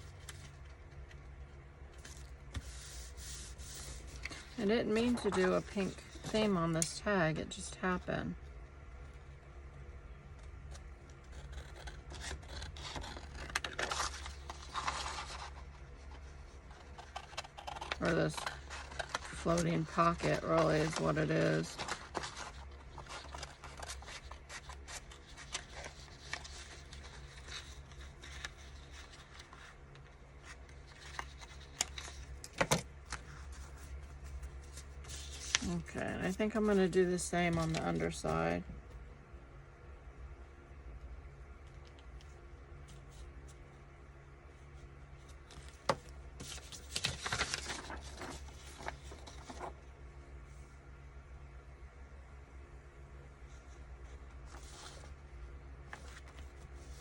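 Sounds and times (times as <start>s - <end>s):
steady low hum: 0.0s - 57.0s
paper rustling: 1.9s - 6.9s, 10.7s - 38.5s, 45.2s - 49.8s, 53.5s - 55.2s, 55.9s - 57.0s.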